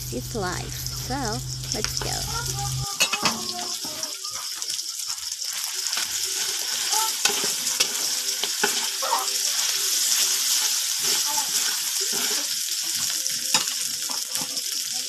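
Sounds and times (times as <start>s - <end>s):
food sizzling in a wok: 0.0s - 15.0s
spatula scraping a pan: 5.5s - 12.6s.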